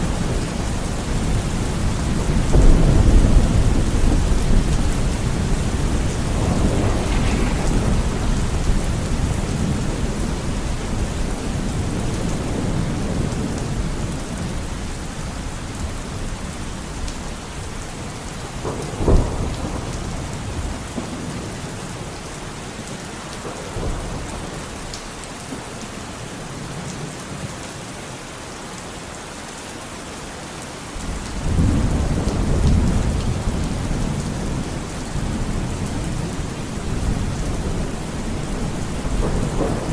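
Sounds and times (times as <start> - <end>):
rolling thunder: 0.0 - 14.9, 17.0 - 22.6, 31.0 - 39.9
steady rain: 0.0 - 39.9
sharp thunder crack: 2.4 - 12.6.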